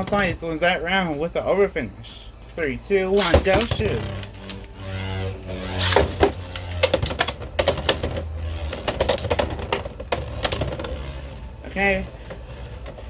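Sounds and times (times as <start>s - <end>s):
gear ratcheting: 3.2s - 13.0s
spinning top whir: 3.2s - 13.0s.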